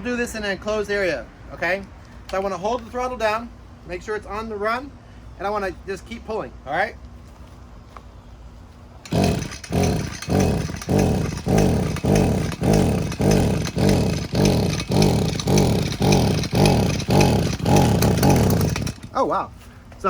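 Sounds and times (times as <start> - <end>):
pull-start rope cranking engine: 9.0 - 19.3.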